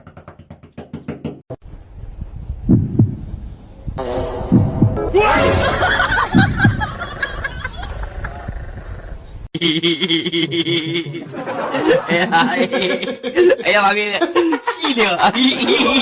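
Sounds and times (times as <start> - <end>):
low thuds in pairs: 1.0 - 3.4, 4.5 - 5.0.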